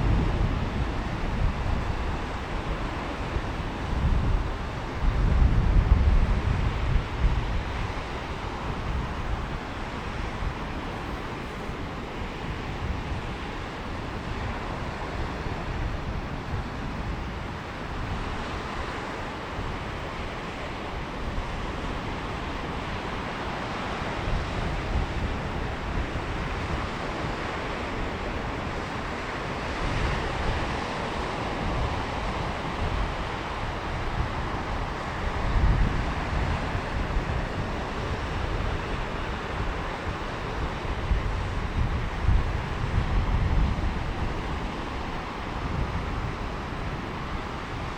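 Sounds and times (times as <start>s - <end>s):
sea waves washing on beach: 0.0s - 47.9s
wind rumbling on microphone: 0.0s - 47.9s.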